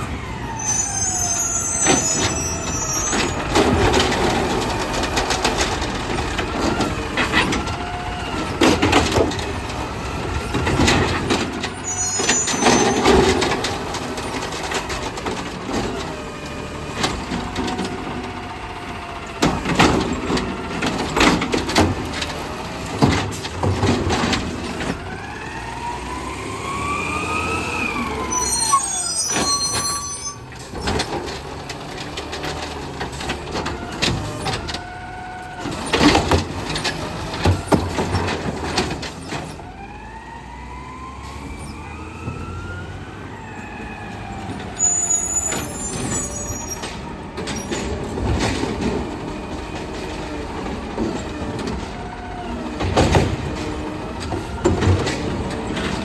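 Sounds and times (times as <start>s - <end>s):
garbage truck engine revving: 0.0s - 56.0s
hydraulics whining: 0.0s - 56.0s
cart slamming against hopper: 1.8s - 16.1s, 19.4s - 25.1s, 35.6s - 39.7s, 45.4s - 56.0s.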